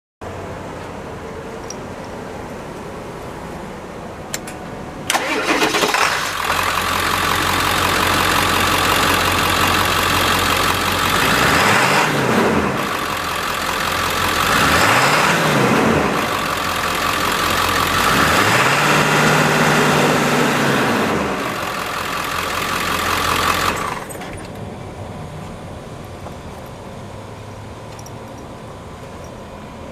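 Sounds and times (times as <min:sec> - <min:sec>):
pickup engine starting: 0:05.0 - 0:24.7
pickup engine idling and revving: 0:05.1 - 0:28.8.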